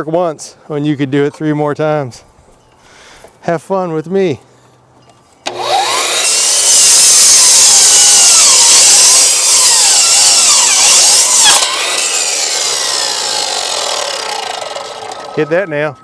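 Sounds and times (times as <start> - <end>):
power saw cutting wood: 5.5 - 16.0.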